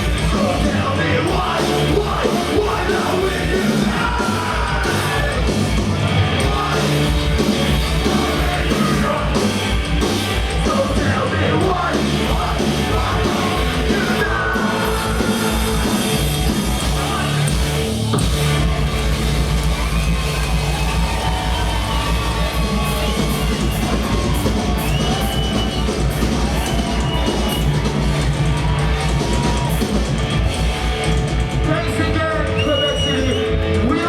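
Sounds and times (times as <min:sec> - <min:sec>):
shouted vocals: 0:00.0 - 0:09.6, 0:10.6 - 0:16.1, 0:19.6 - 0:30.0
bass: 0:00.0 - 0:34.0
distorted electric guitars: 0:00.0 - 0:34.0
drums: 0:00.0 - 0:34.0.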